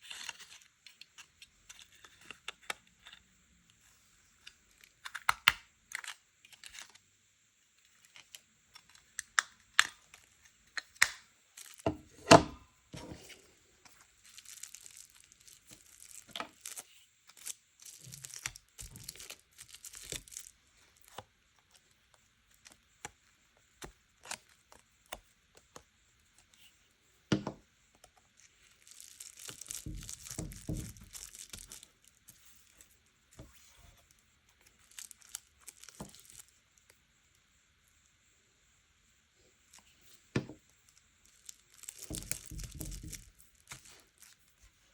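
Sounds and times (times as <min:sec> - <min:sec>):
paper rustling and tearing: 0:14.2 - 0:20.5, 0:28.8 - 0:32.8, 0:41.4 - 0:44.4.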